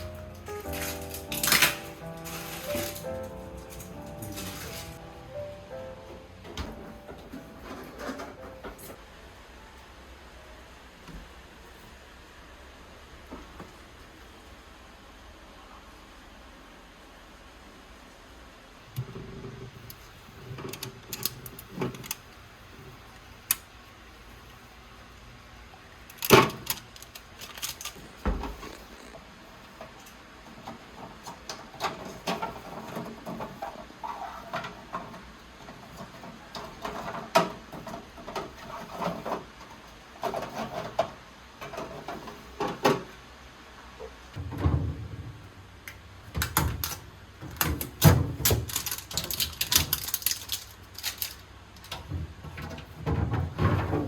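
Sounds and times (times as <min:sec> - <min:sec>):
rustling: 0:00.0 - 0:05.1.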